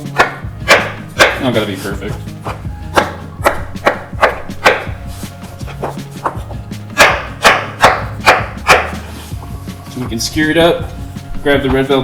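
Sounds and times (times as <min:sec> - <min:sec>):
knife cutting on cutting board: 0:00.0 - 0:09.6
background music: 0:00.0 - 0:12.0.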